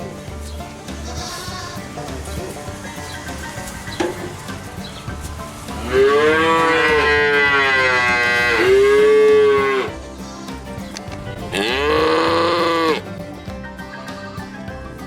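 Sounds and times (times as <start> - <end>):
cattle mooing: 5.7 - 10.0, 11.5 - 13.1.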